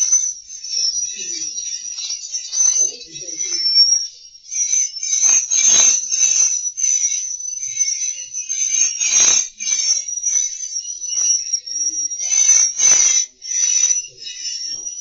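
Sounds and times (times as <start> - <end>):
swiftlets twittering: 0.0 - 15.0.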